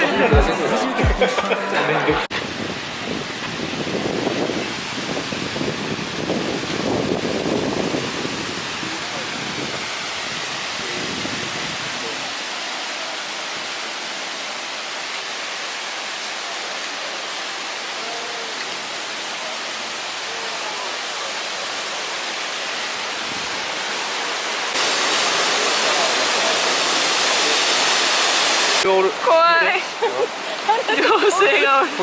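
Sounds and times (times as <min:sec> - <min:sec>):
flowing water rushing: 0:00.0 - 0:32.0.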